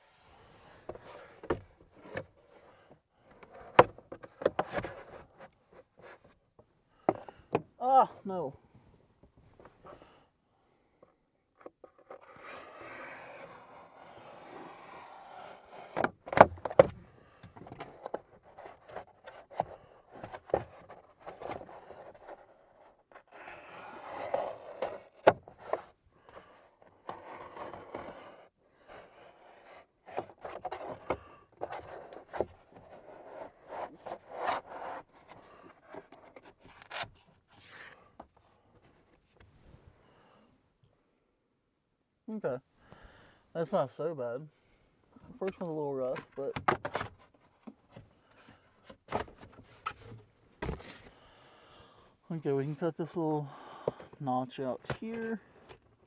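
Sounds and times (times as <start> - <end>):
scraping and rubbing styrofoam: 0.0 - 6.5, 11.7 - 16.9, 17.6 - 39.2.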